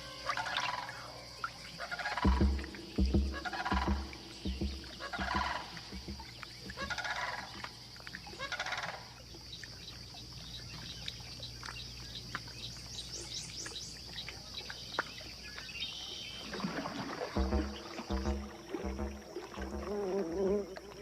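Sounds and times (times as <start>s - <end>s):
raspy pulsing animal calls: 0.0s - 9.2s
high-pitched hum: 2.2s - 7.0s, 17.4s - 20.5s.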